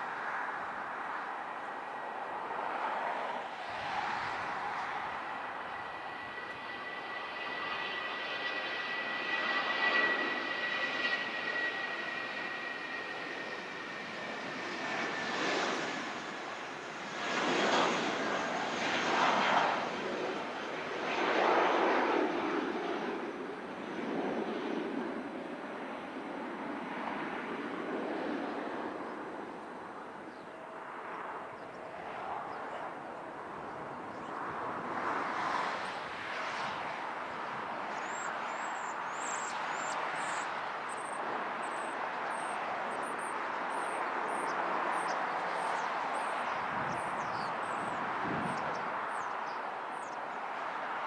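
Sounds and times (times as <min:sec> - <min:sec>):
steady outdoor rushing noise: 0:00.0 - 0:20.5.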